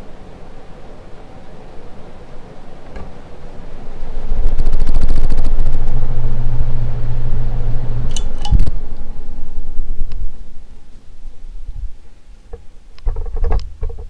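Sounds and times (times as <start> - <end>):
ceiling fan air buffeting microphone: 0.0 - 14.0
fan motor hum: 0.0 - 14.0.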